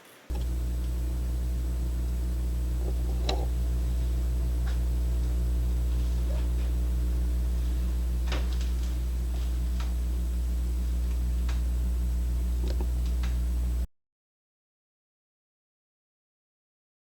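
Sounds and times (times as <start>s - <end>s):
light clicks: 0.3s - 11.8s, 12.4s - 13.5s
low machine hum: 0.3s - 13.9s.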